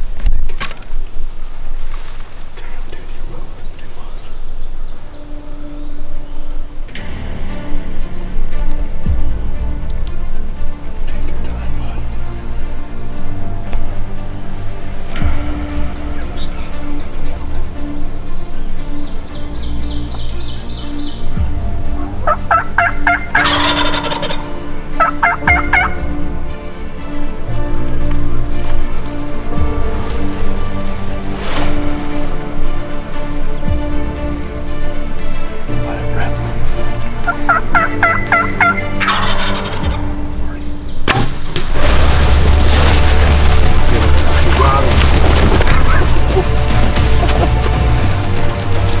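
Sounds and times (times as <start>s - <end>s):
turkey gobbling: 10.2s - 31.6s, 35.0s - 41.2s, 42.8s - 49.0s.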